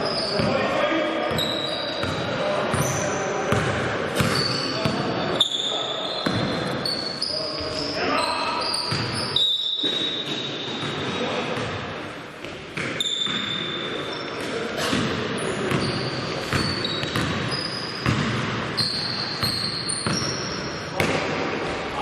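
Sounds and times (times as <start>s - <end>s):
sneakers squeaking: 0.0s - 22.0s
basketball bouncing on court: 1.3s - 5.2s, 6.2s - 6.9s, 8.9s - 11.8s, 12.4s - 13.7s, 14.4s - 21.8s.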